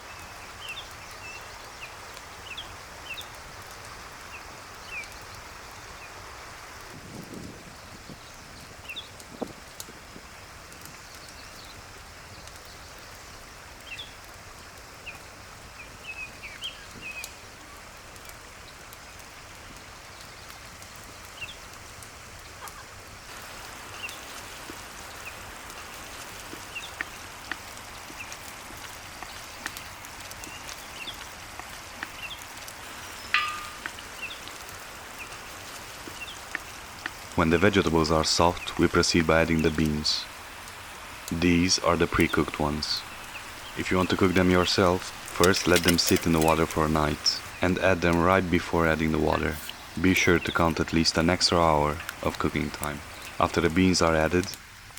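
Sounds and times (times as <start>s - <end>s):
small birds chirping: 0.0s - 6.5s, 7.2s - 54.6s
fire crackles and pops: 0.0s - 54.9s
stew bubbling: 22.2s - 54.8s.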